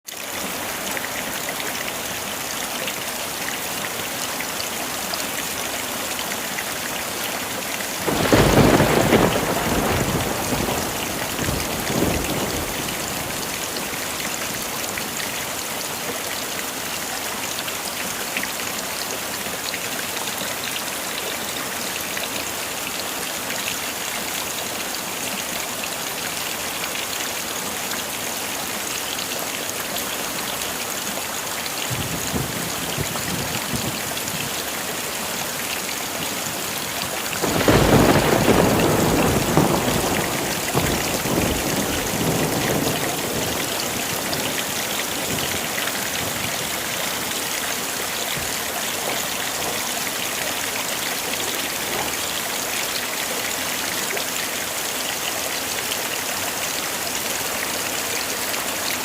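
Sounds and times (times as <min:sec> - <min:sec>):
heavy rain hissing: 0:01.9 - 0:19.4, 0:24.6 - 0:54.1
thunder rumbling: 0:08.0 - 0:14.6, 0:31.9 - 0:34.5, 0:37.4 - 0:46.9.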